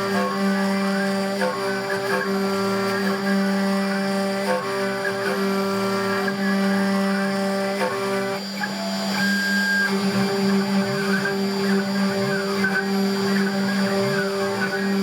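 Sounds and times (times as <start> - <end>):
cnc router spindle whine: 0.0 - 15.0
stepper motor tones: 0.0 - 15.0.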